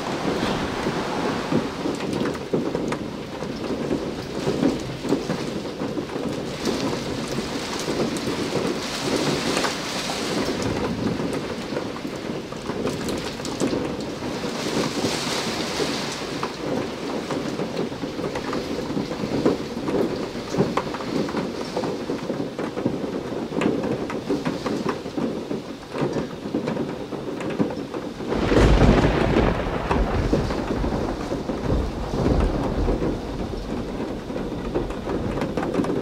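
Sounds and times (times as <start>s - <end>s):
rain in strong wind: 0.0s - 36.0s
raindrops ticking on window glass: 0.0s - 36.0s.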